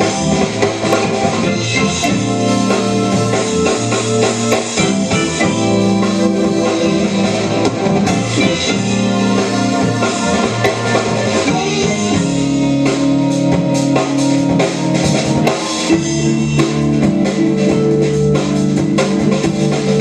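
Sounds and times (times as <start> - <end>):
guitar chords: 0.0 - 20.0.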